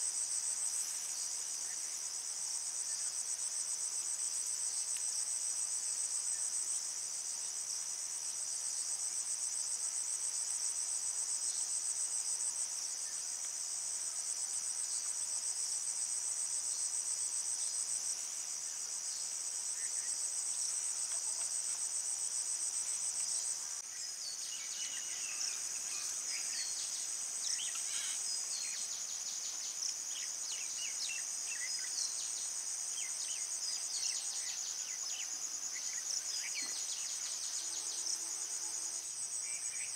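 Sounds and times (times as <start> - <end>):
crickets trilling: 10.9 - 39.9.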